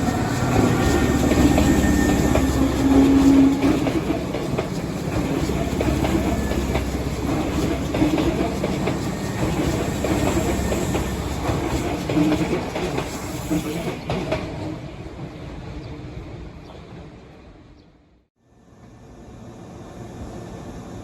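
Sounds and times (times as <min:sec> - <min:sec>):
wheels clacking over rail joints: 0:00.0 - 0:13.2
electric train running: 0:00.0 - 0:14.0.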